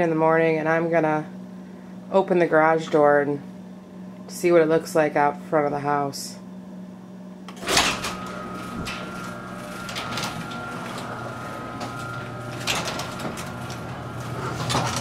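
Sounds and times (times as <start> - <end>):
garage door motor running: 7.5 - 15.0
garage door opener clunk: 7.5 - 15.0.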